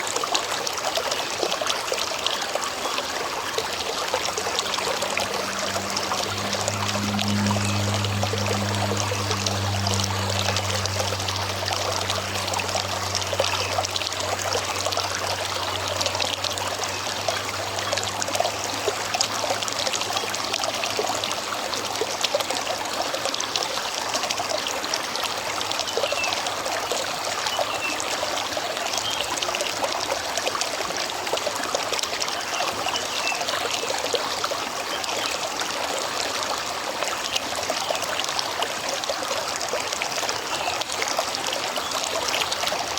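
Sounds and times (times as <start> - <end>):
river water babbling over stones: 0.0 - 42.9
low steady hum: 3.3 - 22.8.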